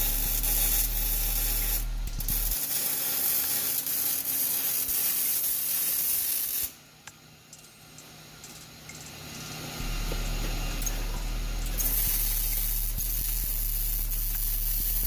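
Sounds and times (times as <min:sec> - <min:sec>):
hydraulic pump motor humming: 0:09.8 - 0:14.4
loud hiss: 0:09.8 - 0:15.0.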